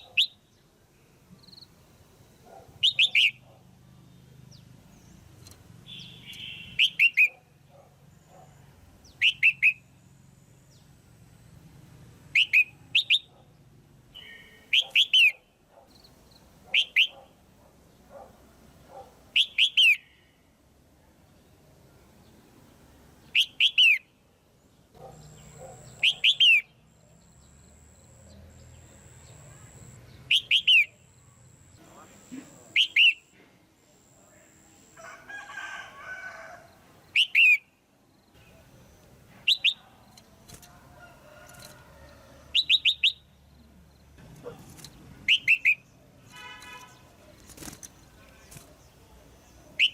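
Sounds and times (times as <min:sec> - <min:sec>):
bird calling in sharp notes: 0:27.4 - 0:31.1, 0:31.7 - 0:33.3.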